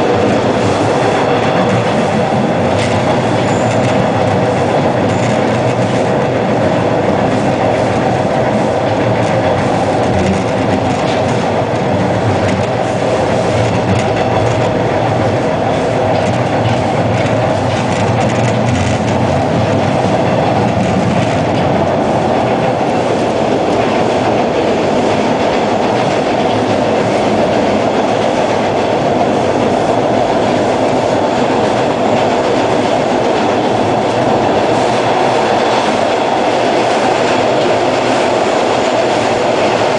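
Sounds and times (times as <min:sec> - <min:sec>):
subway car rumbling on track: 0:00.0 - 0:39.9.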